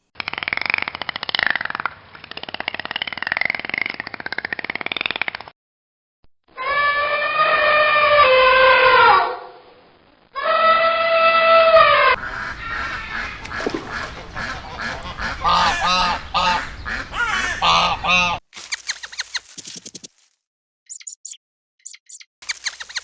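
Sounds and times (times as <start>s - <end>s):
geese honking: 12.2s - 18.4s.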